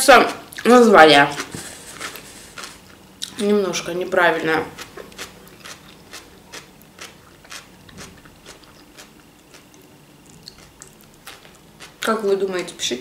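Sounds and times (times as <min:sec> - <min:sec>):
person chewing food: 0:01.3 - 0:03.4, 0:04.6 - 0:12.1.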